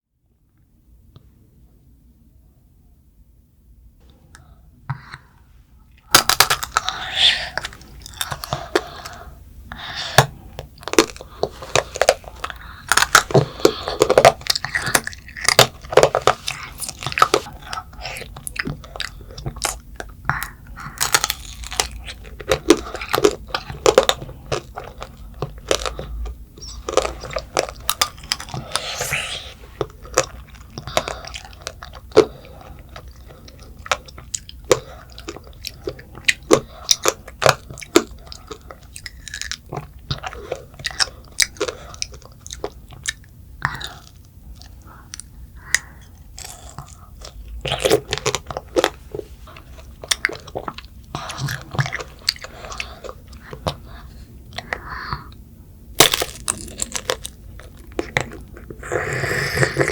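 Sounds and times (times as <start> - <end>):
candy shell crunching: 6.0 - 54.0, 56.0 - 59.9
chewing: 6.0 - 55.4, 56.0 - 59.9.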